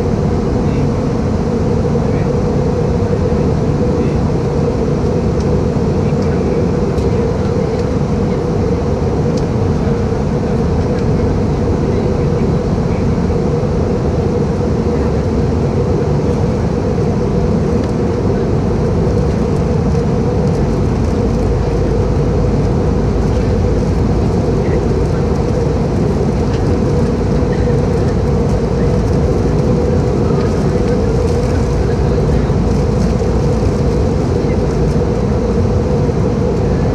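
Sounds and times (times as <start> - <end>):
constant low hum: 0.0 - 36.9
jet engine drone: 0.0 - 36.9.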